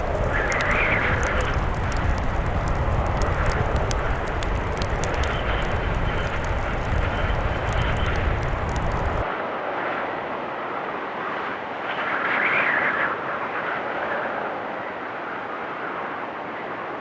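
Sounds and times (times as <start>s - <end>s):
wood fire crackling: 0.0s - 9.2s
heavy blizzard wind: 0.0s - 17.0s.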